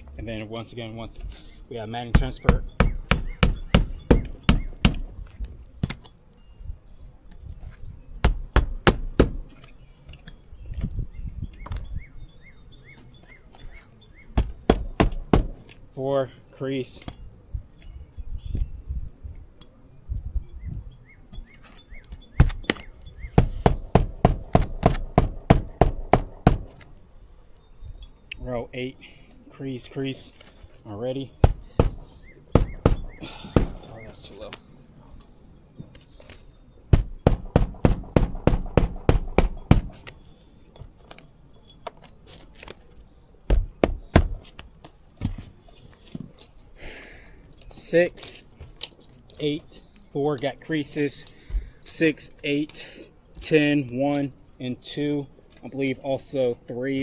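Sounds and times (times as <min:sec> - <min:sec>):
sharp knocks: 0:02.1 - 0:05.1, 0:08.2 - 0:09.5, 0:14.4 - 0:15.6, 0:22.4 - 0:26.8, 0:31.4 - 0:33.9, 0:36.9 - 0:40.2, 0:43.5 - 0:44.4.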